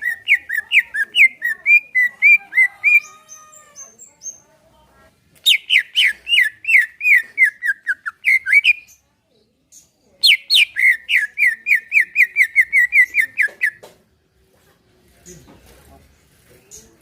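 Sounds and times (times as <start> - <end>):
bird whistled song: 5.4 - 9.0, 10.2 - 13.8.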